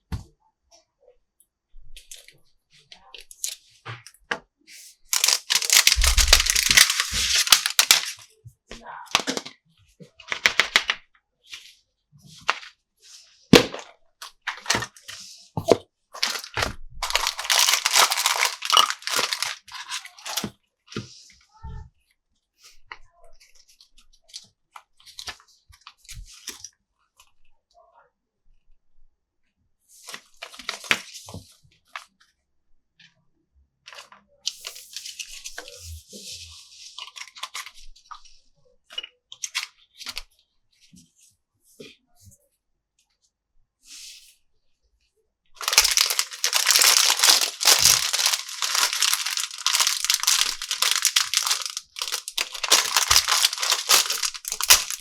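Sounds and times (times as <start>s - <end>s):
plastic crinkling and tearing: 5.1s - 8.2s, 14.5s - 15.0s, 16.2s - 20.5s, 45.6s - 55.0s
plastic packaging clicks and crinkles: 5.1s - 8.3s, 10.2s - 11.0s, 13.6s - 15.2s, 16.2s - 20.5s, 30.4s - 31.1s, 45.6s - 55.0s.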